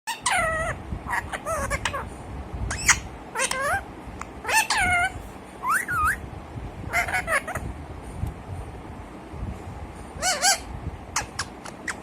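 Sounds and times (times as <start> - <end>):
parrot meow-like calls and squawks: 0.1 - 2.1, 2.7 - 3.8, 4.4 - 6.2, 6.9 - 7.6, 10.2 - 12.0.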